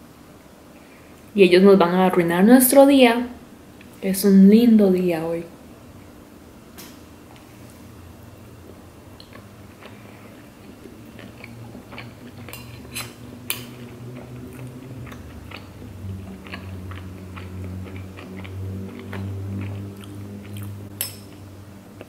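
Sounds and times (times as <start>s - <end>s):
person chewing food: 8.6s - 22.0s.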